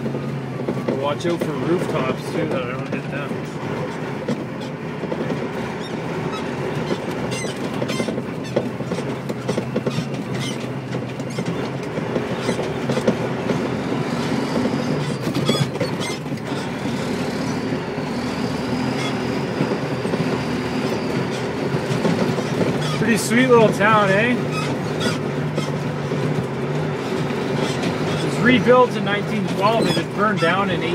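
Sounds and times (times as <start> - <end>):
clanks and rattles: 0.0 - 30.9
truck engine running: 0.0 - 30.9.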